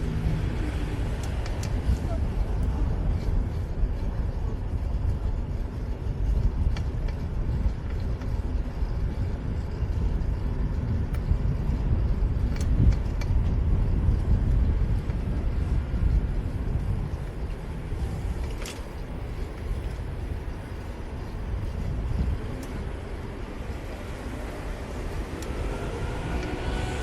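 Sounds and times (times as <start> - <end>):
cars passing: 0.0 - 6.3, 13.6 - 27.0
wind and road noise: 0.0 - 27.0
light ticks: 6.3 - 8.9, 10.8 - 11.6, 12.4 - 13.6.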